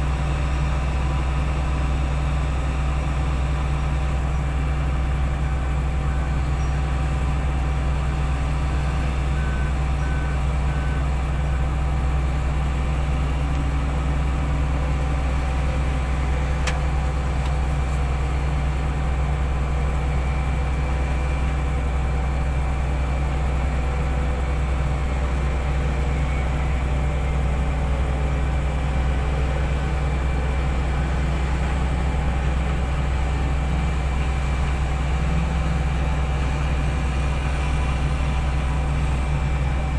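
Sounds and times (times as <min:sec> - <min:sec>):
heavy equipment engine droning: 0:00.0 - 0:39.9
faint backup alarm beeps: 0:08.5 - 0:11.6.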